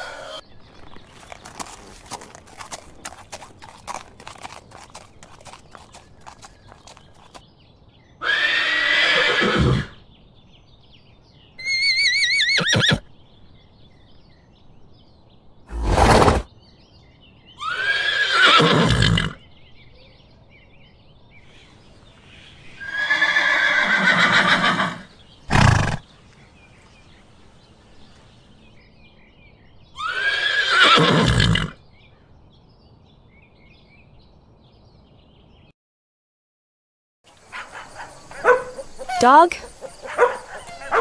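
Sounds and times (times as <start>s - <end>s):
horse neighing: 8.2s - 9.9s, 11.6s - 13.0s, 15.7s - 16.5s, 22.8s - 26.0s, 30.0s - 31.8s, 38.4s - 41.0s.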